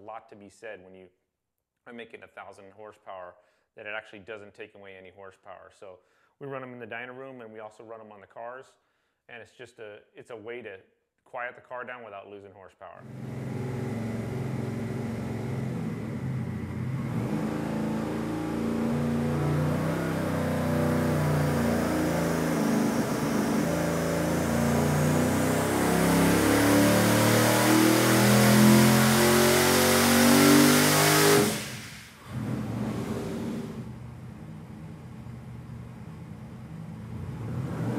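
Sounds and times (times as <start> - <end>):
car engine revving under load: 13.0 - 37.9.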